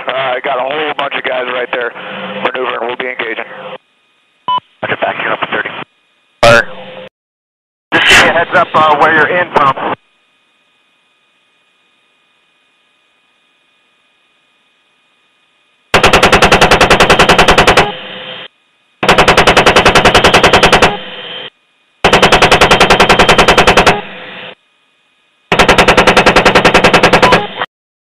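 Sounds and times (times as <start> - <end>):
helicopter chain gun firing: 15.9 - 18.1, 19.0 - 21.2, 22.0 - 24.2, 25.5 - 27.6.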